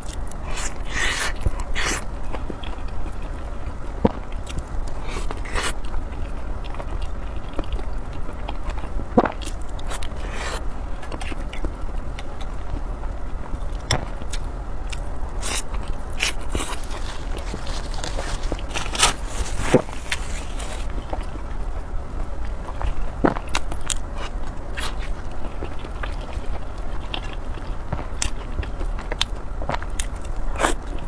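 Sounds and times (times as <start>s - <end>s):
steady low hum: 0.0s - 31.0s
chewing with mouth clicks: 4.1s - 12.8s, 22.4s - 31.0s.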